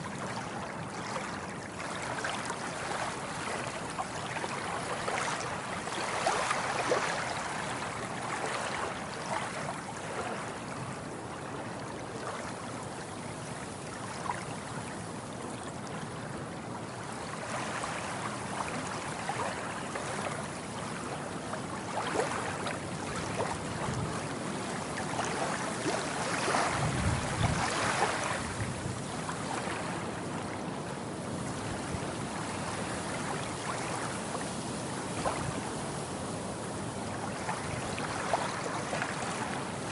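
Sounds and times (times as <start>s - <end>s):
ocean waves breaking: 21.8s - 30.7s.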